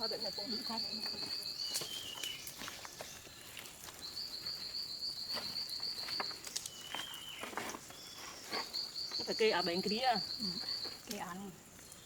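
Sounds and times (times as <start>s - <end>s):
insect trilling: 8.4s - 11.6s.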